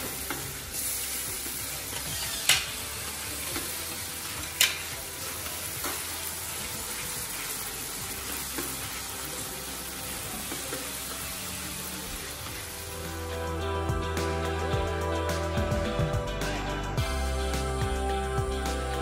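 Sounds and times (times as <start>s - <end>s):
sauce sizzling in oil: 0.0s - 13.7s.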